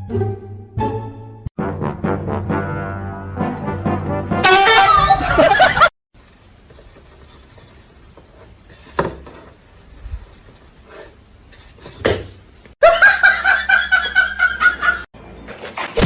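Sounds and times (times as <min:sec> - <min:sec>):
person laughing loudly: 0:05.0 - 0:05.9.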